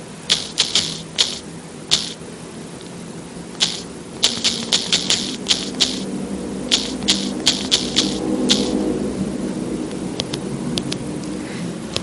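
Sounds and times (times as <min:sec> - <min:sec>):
faint low hum: 0:00.0 - 0:12.0
sharp clicks: 0:00.3 - 0:02.2, 0:03.5 - 0:06.1, 0:06.7 - 0:08.8.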